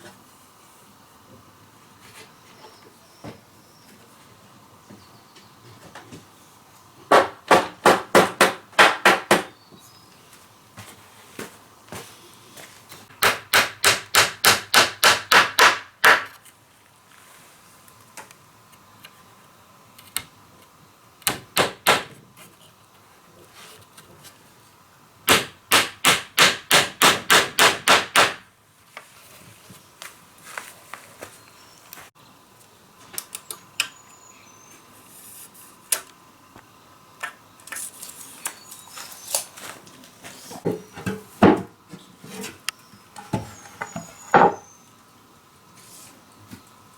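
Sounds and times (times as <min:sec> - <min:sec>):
hammer striking wood: 0:07.1 - 0:09.5, 0:13.2 - 0:16.4, 0:21.3 - 0:22.1, 0:25.3 - 0:28.4.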